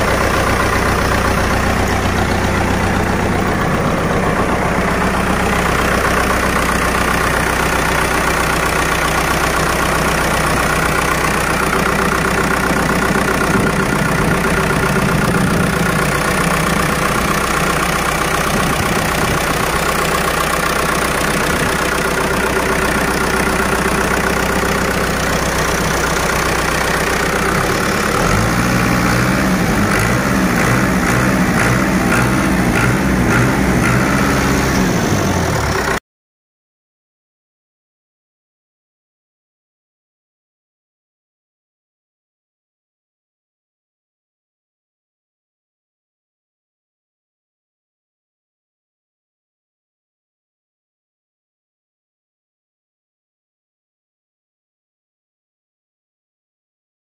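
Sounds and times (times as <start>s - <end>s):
tractor diesel engine idling: 0.0s - 36.0s.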